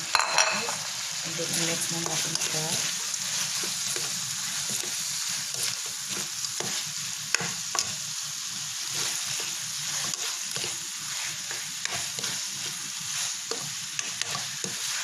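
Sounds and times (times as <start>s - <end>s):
food sizzling in a pan: 0.0s - 15.0s
utensil scraping a pan: 8.8s - 15.0s.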